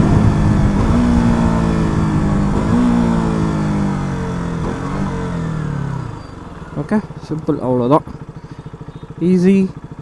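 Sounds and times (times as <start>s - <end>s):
wind on microphone: 0.0s - 3.9s
motorcycle engine blips downshifting: 0.0s - 10.0s.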